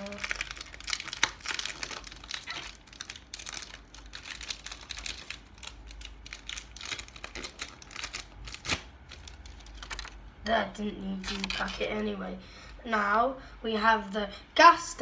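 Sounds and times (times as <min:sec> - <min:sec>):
foil packet tearing and crinkling: 0:00.0 - 0:10.2, 0:11.2 - 0:11.9.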